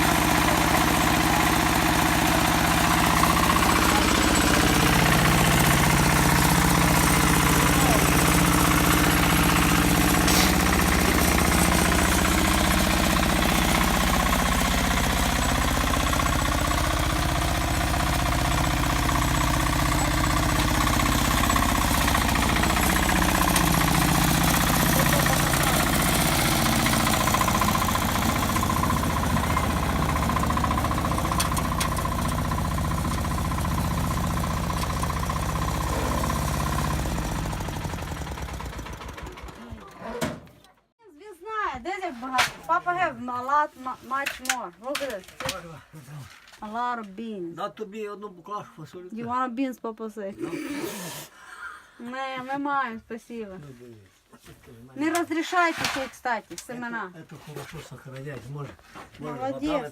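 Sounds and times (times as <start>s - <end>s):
engine running with knocking beat: 0.0s - 39.8s.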